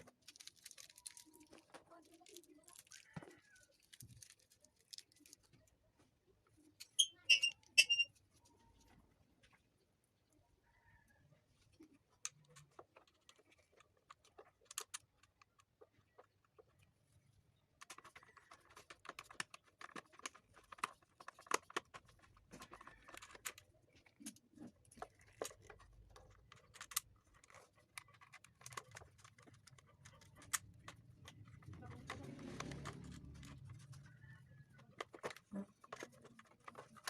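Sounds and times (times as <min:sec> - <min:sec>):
hands clicking small parts: 0:17.8 - 0:34.0.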